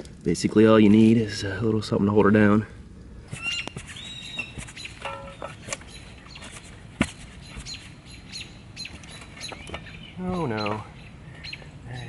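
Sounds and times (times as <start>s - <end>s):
birds chirping: 3.3s - 12.0s.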